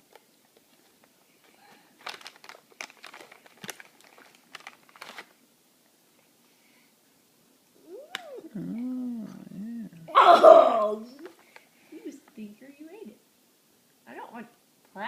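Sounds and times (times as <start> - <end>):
plastic snack bag crinkling: 0.1 - 5.4.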